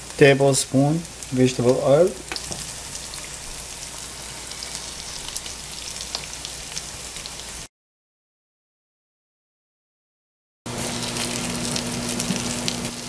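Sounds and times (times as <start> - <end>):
potato patties sizzling in oil: 0.0 - 7.7, 10.7 - 13.0.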